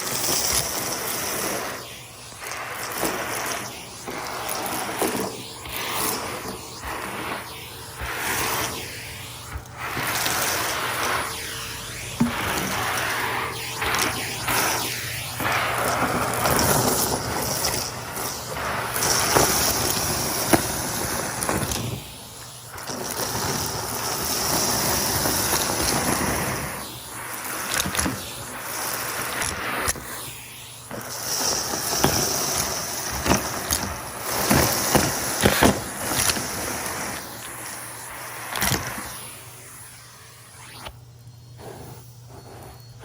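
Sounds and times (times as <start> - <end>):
vacuum cleaner running: 0.0 - 43.0.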